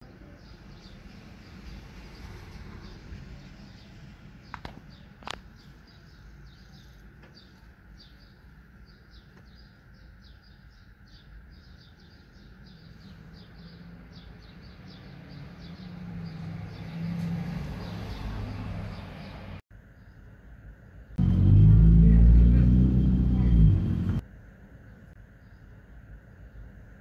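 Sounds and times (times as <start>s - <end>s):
low street noise: 0.0s - 27.0s
low rumble: 21.2s - 24.2s.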